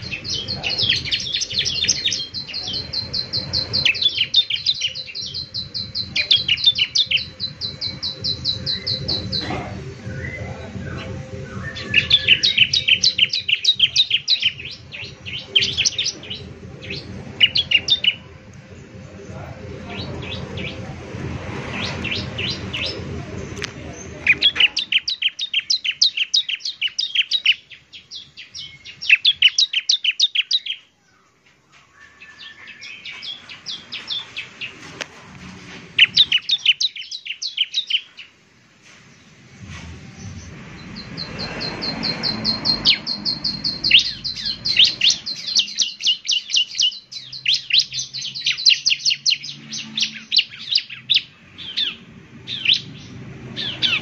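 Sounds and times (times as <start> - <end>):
bird singing chipping notes: 0.0 - 20.9, 21.5 - 35.0, 35.9 - 38.4, 39.1 - 54.0
low rumble: 0.0 - 24.8, 39.0 - 45.4.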